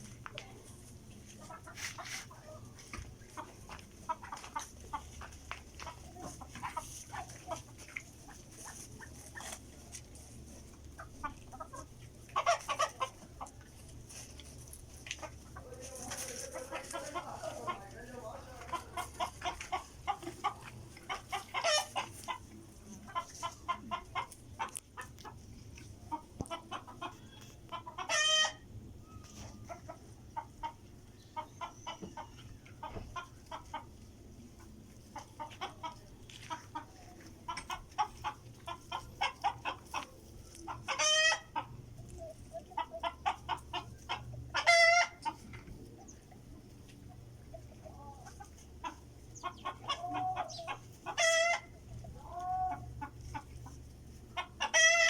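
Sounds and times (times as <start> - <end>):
chickens clucking: 0.0 - 55.0
chicken squawks: 31.4 - 33.9, 37.7 - 45.5, 47.9 - 53.4, 54.4 - 55.0.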